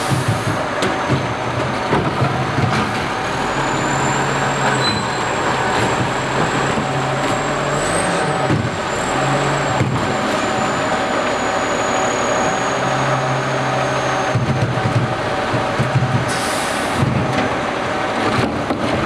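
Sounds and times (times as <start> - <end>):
garbage truck engine humming: 0.0 - 19.0.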